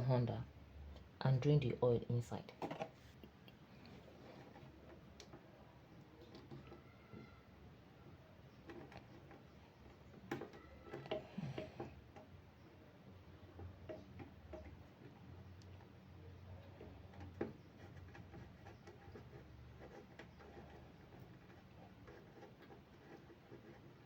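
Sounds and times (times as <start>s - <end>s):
faint clicks and metallic taps: 2.6s - 7.4s, 8.5s - 12.4s, 13.4s - 16.0s.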